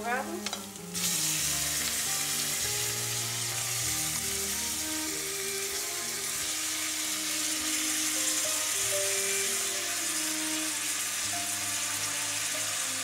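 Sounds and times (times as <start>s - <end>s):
background music: 0.0s - 13.0s
onion sizzling in a pot: 0.0s - 13.0s.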